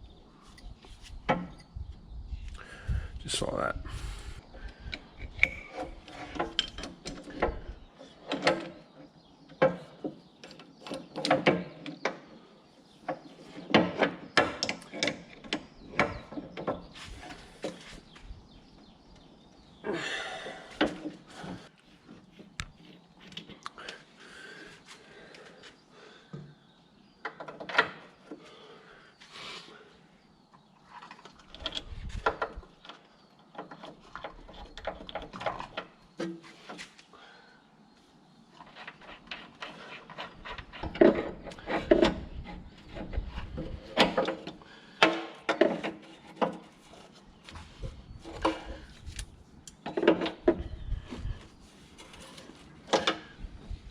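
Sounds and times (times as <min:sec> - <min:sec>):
hoses and metal fittings handled: 0:38.6 - 0:53.8.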